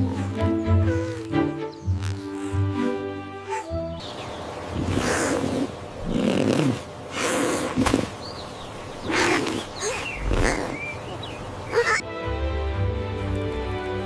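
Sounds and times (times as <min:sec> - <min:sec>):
short animal calls: 0:09.1 - 0:10.9.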